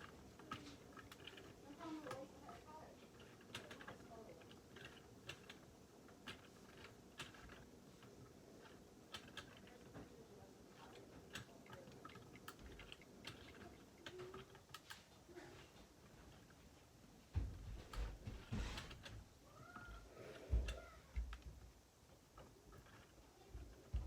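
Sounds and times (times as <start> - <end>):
plastic pieces clicking together: 0.0 - 15.0.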